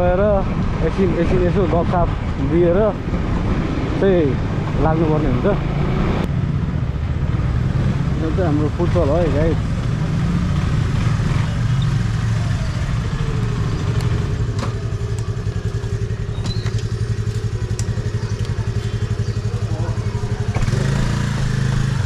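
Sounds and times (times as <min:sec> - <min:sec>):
motorcycle engine idling: 0:11.5 - 0:22.0.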